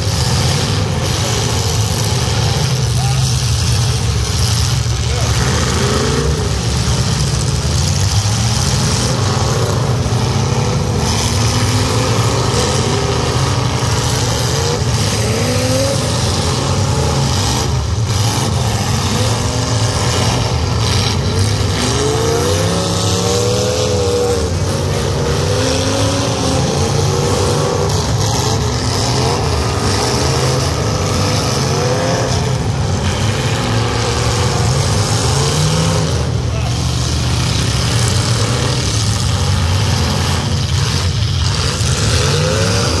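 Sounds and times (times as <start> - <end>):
car engines revving: 0.0 - 43.0.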